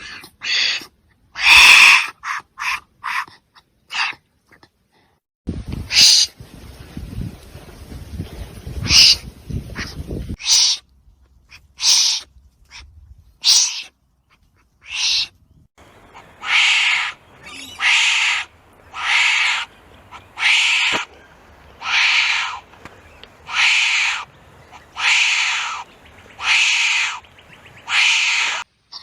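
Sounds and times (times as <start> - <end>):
wombat raspy calls: 0.0 - 3.3, 9.8 - 10.8, 11.5 - 15.3, 16.1 - 21.1, 21.8 - 22.6, 23.4 - 27.2, 27.8 - 29.0.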